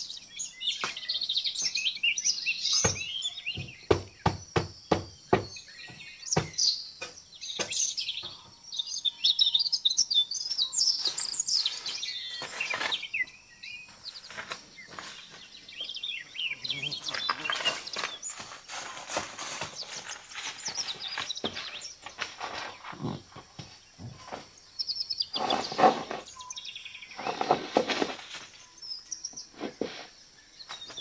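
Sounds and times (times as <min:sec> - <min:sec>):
small birds chirping: 0:00.0 - 0:31.0
sharp knocks: 0:02.8 - 0:08.5.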